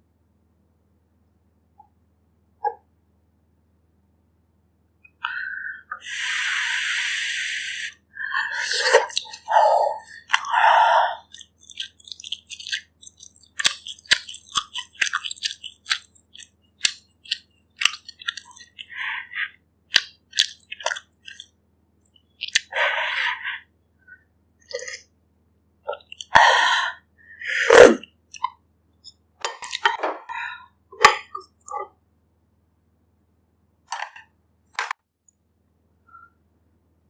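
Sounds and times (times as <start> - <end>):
person slurping soup: 6.0 - 21.4, 24.7 - 25.1, 25.9 - 28.0
wet chewing: 8.7 - 19.0, 19.9 - 21.6, 22.3 - 22.8, 25.9 - 26.4, 27.7 - 30.4.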